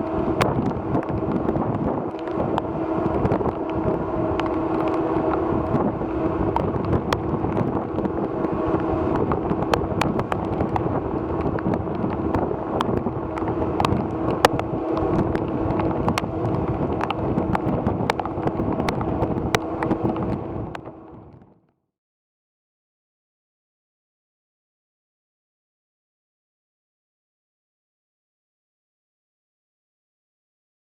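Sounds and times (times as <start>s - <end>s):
ferry machinery droning: 0.0s - 21.6s
wind on microphone: 0.0s - 21.6s
rain ticks: 0.4s - 21.4s.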